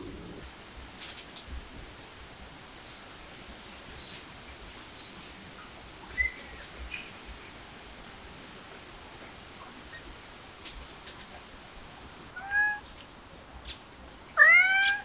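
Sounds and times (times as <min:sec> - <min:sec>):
small birds chirping: 0:01.0 - 0:07.6, 0:12.4 - 0:15.0.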